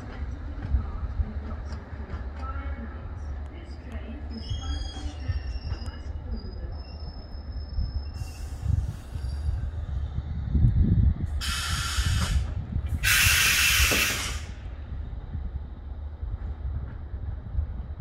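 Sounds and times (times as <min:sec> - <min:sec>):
electric train rumbling: 0:00.0 - 0:18.0
faint high wheel squeal: 0:04.3 - 0:09.6
loud hiss bursts: 0:11.4 - 0:14.6.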